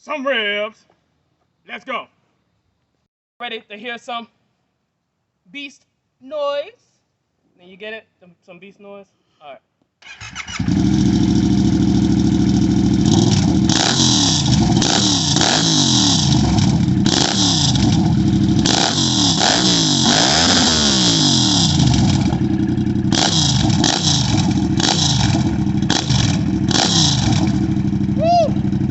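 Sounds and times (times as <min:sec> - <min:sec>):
motorcycle engine revving: 0:10.0 - 0:28.9.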